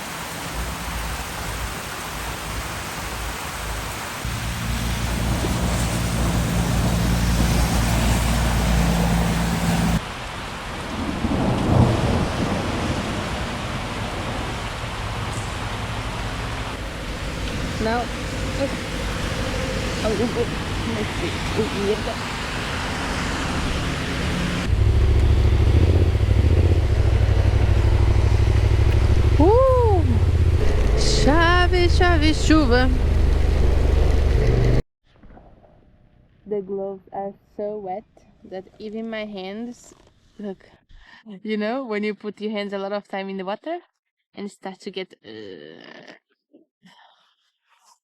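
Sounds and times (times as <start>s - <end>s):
heavy rain: 0.0s - 34.6s
motorcycle engine hum: 4.3s - 10.0s, 14.8s - 34.8s
thunder rumbling: 10.8s - 34.8s
motorcycle engine running: 23.7s - 34.8s.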